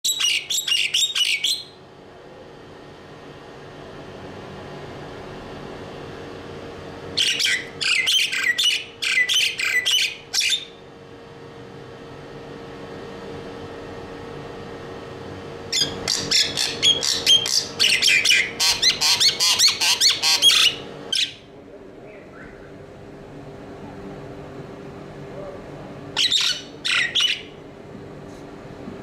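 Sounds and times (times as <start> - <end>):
bird squawking: 0.1 - 1.8, 7.2 - 10.8, 15.7 - 21.4, 22.1 - 22.8, 26.2 - 27.6.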